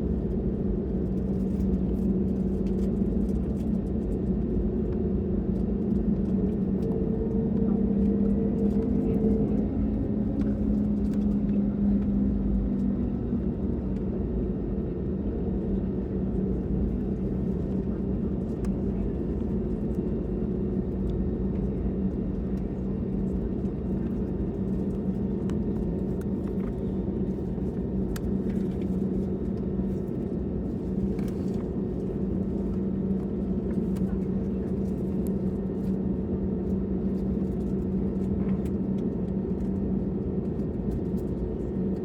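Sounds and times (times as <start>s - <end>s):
airplane cabin engine hum: 0.0s - 42.0s.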